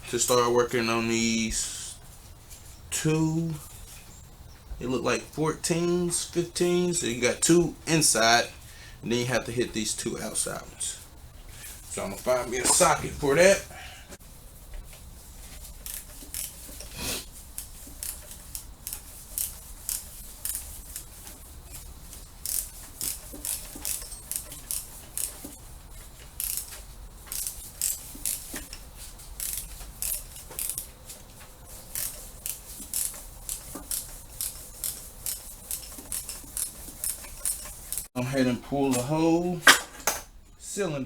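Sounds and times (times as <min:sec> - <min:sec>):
socket ratchet wrench clicking: 0:15.8 - 0:16.6, 0:22.4 - 0:25.4, 0:26.4 - 0:28.8, 0:29.4 - 0:30.9, 0:31.9 - 0:38.1.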